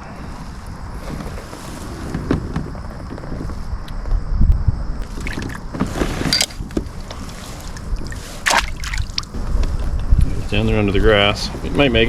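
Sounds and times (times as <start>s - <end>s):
wind rumbling on microphone: 0.0s - 12.0s
water splashes: 5.0s - 9.4s.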